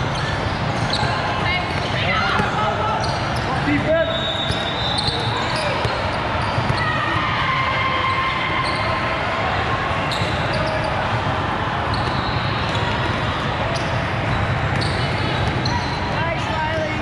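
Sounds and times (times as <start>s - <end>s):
faint shoe squeaks: 0.0s - 7.0s, 10.1s - 11.0s, 11.9s - 13.0s, 13.7s - 16.2s.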